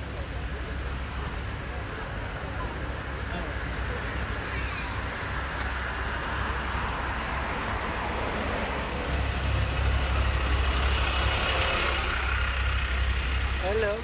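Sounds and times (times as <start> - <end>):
heavy vehicle engine rumble: 0.0 - 14.0
road traffic: 0.0 - 14.0.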